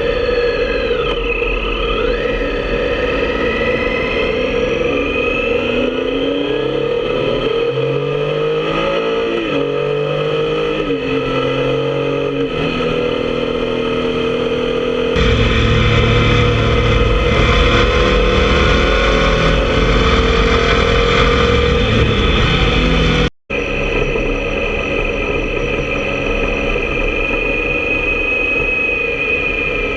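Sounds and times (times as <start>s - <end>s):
motorcycle engine shifting gears: 8.6s - 23.3s.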